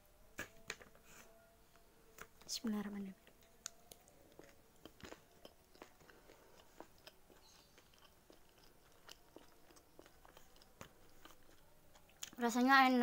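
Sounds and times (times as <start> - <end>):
person chewing food: 3.2 - 12.4.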